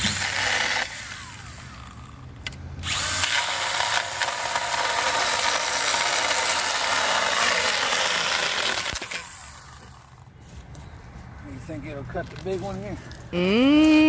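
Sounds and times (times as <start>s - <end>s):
mini chainsaw cutting wood: 0.0s - 2.2s, 2.8s - 10.1s.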